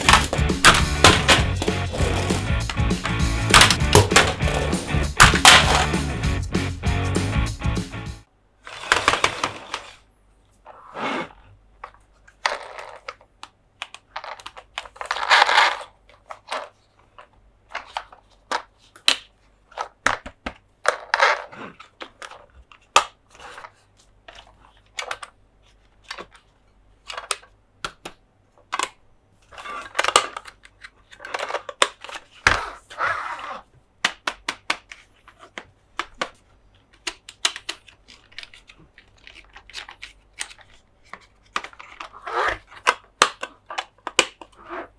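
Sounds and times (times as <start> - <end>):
plastic toys clicking: 0.0 - 6.0, 11.8 - 32.6, 34.0 - 44.6
scratchy rustles: 0.0 - 6.0.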